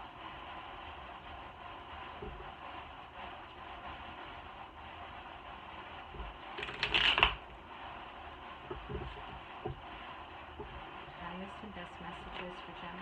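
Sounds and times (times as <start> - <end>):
fan hiss: 0.0 - 13.0
cards riffle shuffling: 6.6 - 7.4.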